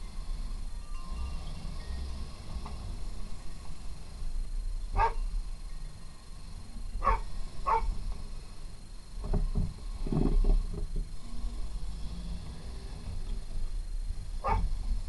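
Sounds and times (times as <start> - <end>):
low steady rumble: 0.0 - 15.0
dog barking: 5.0 - 5.2, 7.0 - 7.9, 14.4 - 14.7.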